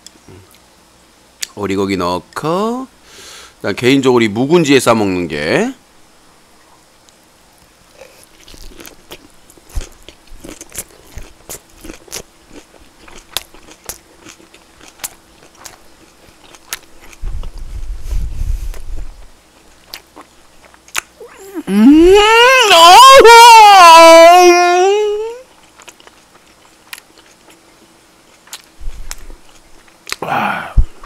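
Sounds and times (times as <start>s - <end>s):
person chewing food: 7.9s - 17.7s, 19.6s - 21.7s, 25.5s - 27.6s, 28.2s - 31.0s.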